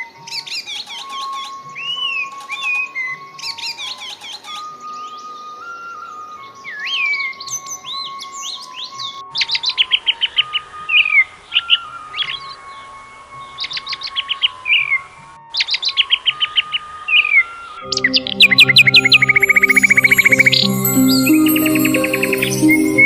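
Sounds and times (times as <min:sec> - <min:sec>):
songbirds singing and chirping: 0:00.0 - 0:23.0
steady held tone: 0:17.8 - 0:23.0.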